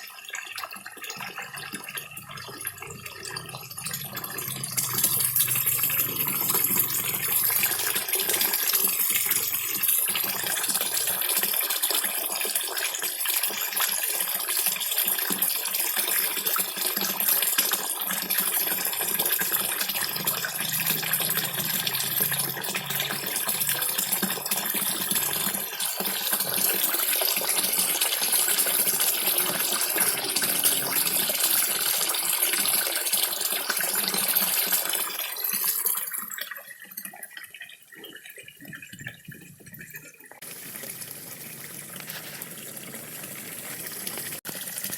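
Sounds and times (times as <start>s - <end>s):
fish slurping at water surface: 40.4s - 44.9s
small waterfall splashing: 40.4s - 44.9s.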